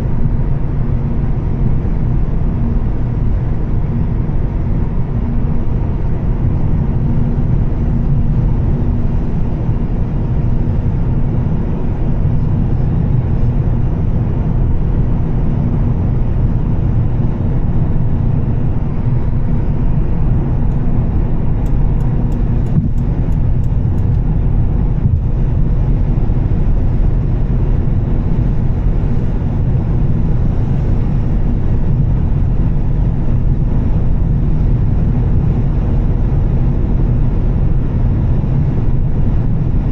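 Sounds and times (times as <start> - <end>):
car engine and tyres cruising: 0.0 - 39.9
light ticks: 21.6 - 24.2.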